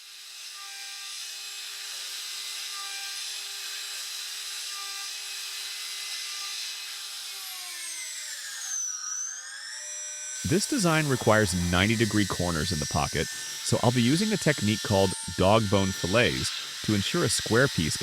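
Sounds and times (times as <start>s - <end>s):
router spindle whine: 0.0s - 18.0s
cutting hiss: 10.4s - 18.0s.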